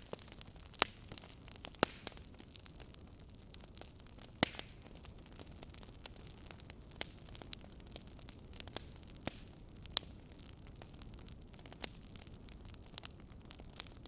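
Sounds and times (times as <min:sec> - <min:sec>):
fire popping: 0:00.0 - 0:14.0
wood fire rumbling: 0:00.0 - 0:14.0.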